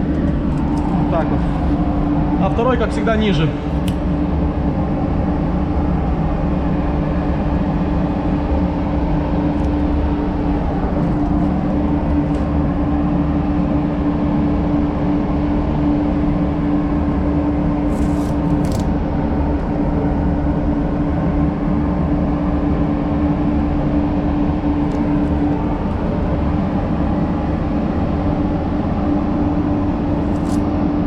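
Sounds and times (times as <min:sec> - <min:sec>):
ventilation fans droning: 0:00.0 - 0:31.0.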